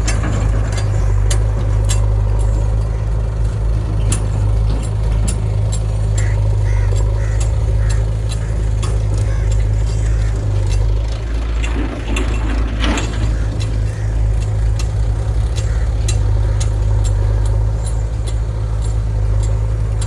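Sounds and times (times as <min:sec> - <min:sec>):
diesel engine running: 0:00.0 - 0:20.0
sharp ticks: 0:04.1 - 0:11.0, 0:13.6 - 0:20.0.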